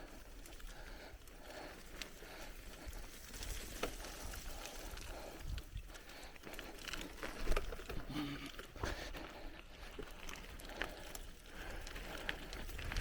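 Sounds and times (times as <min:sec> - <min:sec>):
bicycle tyres on dirt track: 0:00.0 - 0:13.0
bike clicks and rattles: 0:00.0 - 0:13.0.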